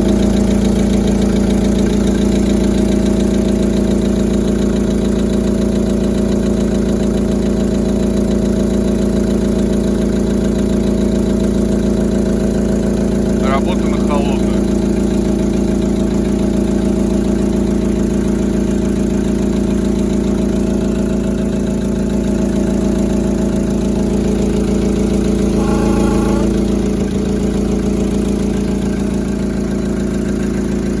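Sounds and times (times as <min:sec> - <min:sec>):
car engine idling with knock: 0:00.0 - 0:31.0
brief higher tone: 0:25.4 - 0:26.8.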